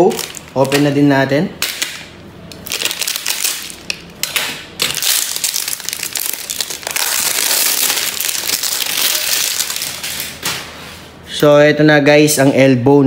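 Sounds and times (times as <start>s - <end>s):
plastic packaging crinkling: 0.0s - 10.6s.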